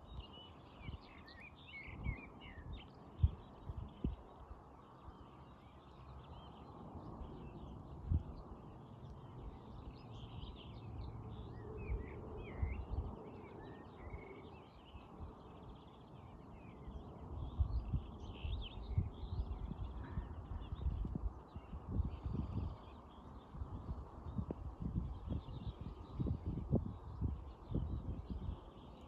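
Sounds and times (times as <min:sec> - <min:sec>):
songbirds chirping: 0:00.0 - 0:29.0.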